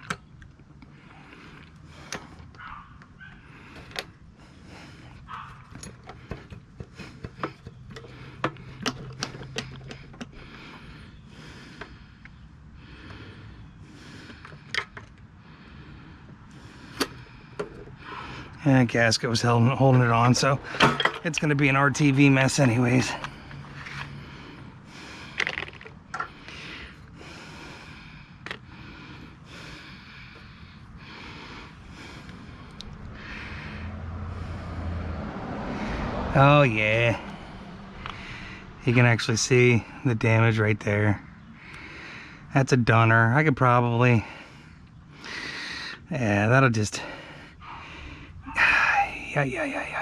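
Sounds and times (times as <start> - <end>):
tools and metal parts clicking: 5.4 - 10.4, 20.2 - 21.5
soft scraping and handling: 18.8 - 27.1.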